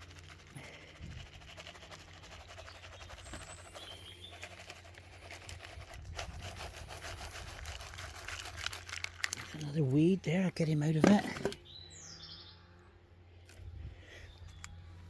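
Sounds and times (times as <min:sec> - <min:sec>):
soil scraping in a tub: 0:00.0 - 0:11.6
bird chirps: 0:02.6 - 0:04.5, 0:11.6 - 0:12.8.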